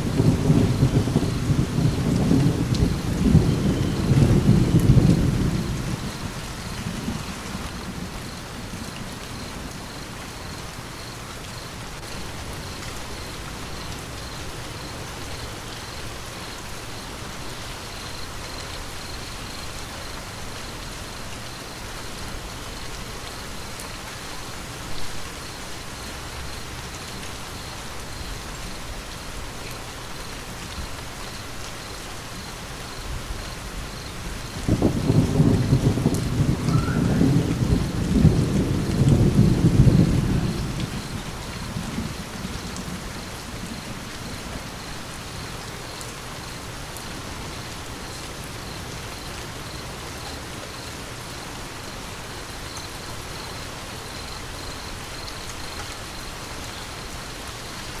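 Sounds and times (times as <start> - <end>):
thunder rumbling: 0.0 - 10.8, 33.1 - 46.2
steady rain falling: 0.0 - 58.0.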